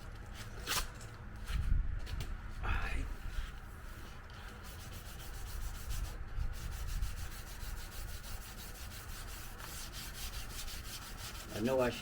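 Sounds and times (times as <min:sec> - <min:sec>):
sandpaper rubbing on painted metal: 0:03.9 - 0:12.0.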